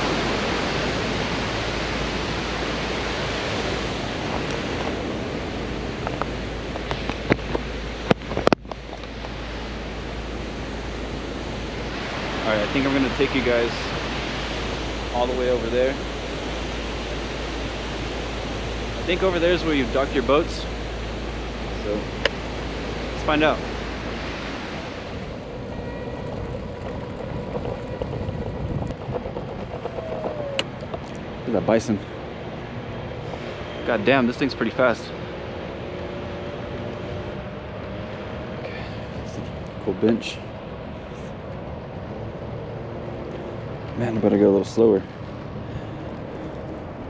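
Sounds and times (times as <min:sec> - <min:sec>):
waterfall rushing: 0:00.0 - 0:08.4, 0:09.1 - 0:26.4
faint steady whine: 0:00.0 - 0:47.0.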